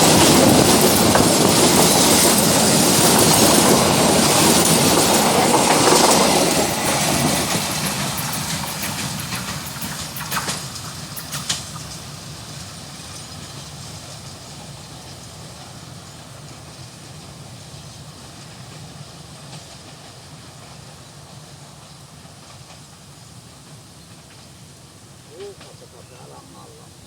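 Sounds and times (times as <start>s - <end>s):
train wheels clacking over rail joints: 0.0s - 17.0s
train rumble: 0.0s - 27.0s.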